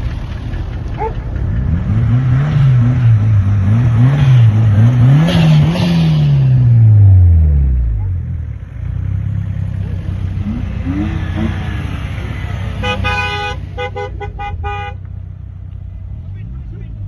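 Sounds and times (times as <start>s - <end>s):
car engine rumbling: 0.0s - 17.0s
car horn toots: 12.6s - 15.1s.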